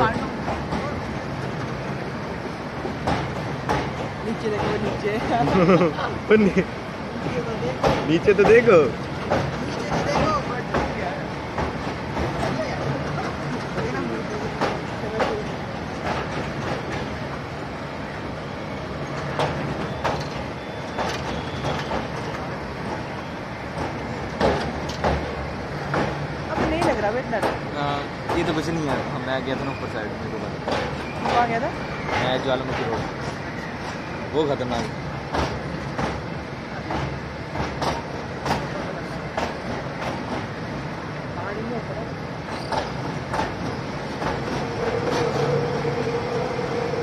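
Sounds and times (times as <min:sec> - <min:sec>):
train rumbling: 0:00.0 - 0:47.0
wheels knocking on track: 0:02.8 - 0:05.8, 0:07.2 - 0:17.2, 0:19.2 - 0:23.1, 0:23.7 - 0:29.5, 0:34.6 - 0:40.6, 0:42.5 - 0:47.0.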